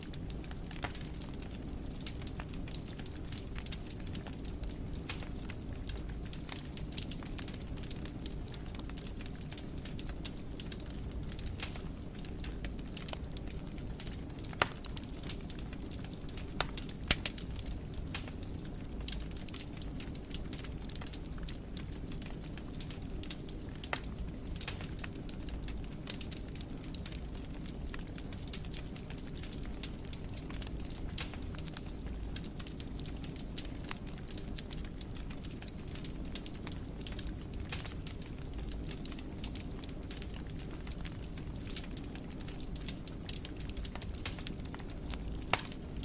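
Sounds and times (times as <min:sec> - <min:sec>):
fire crackling with snaps: 0:00.0 - 0:46.0
low rumble of burning: 0:00.0 - 0:46.0
loud fire pops: 0:36.0 - 0:46.0.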